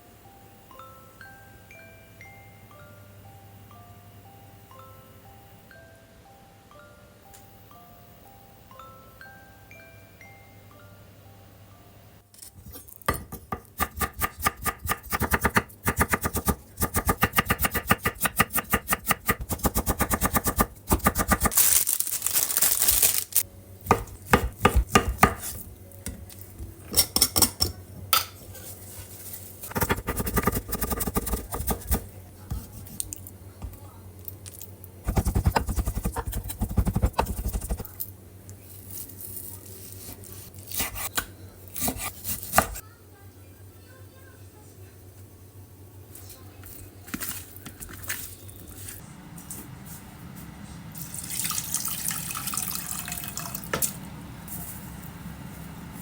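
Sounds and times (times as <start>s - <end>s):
knife chopping on cutting board: 13.1s - 21.5s, 23.8s - 26.2s, 29.7s - 33.8s, 35.1s - 37.8s, 40.8s - 42.8s.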